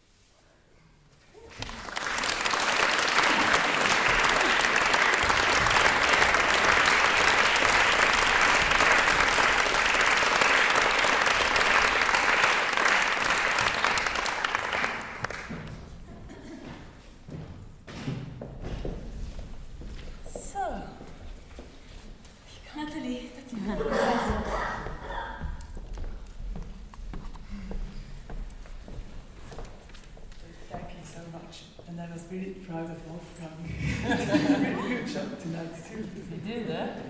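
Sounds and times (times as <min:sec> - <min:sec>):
audience applauding: 0:01.4 - 0:15.8.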